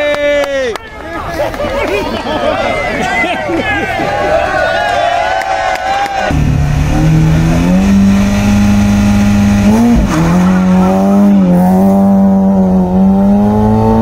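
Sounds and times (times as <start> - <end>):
rally car engine revving: 6.2 - 14.0.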